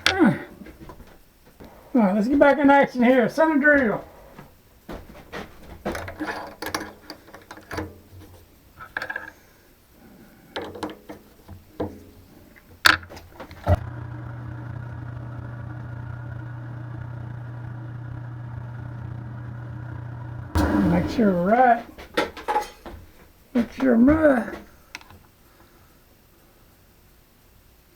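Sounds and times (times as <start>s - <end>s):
tooling clicking and knocking: 3.7s - 9.6s, 10.4s - 13.8s, 20.6s - 25.2s
electric motor humming: 13.2s - 22.0s.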